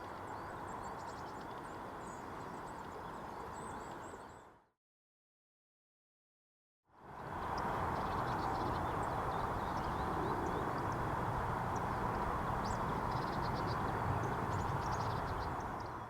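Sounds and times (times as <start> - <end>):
small birds chirping: 11.7 - 16.0.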